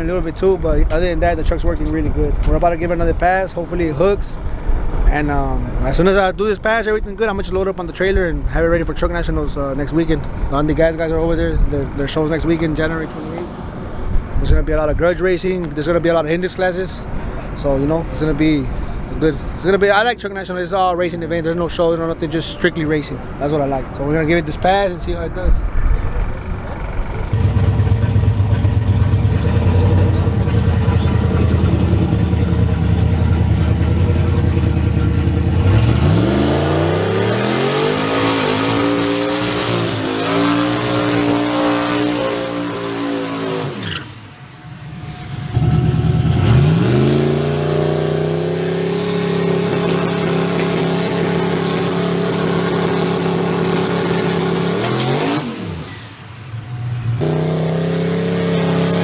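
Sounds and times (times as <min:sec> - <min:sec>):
truck engine accelerating: 0:16.8 - 0:59.0.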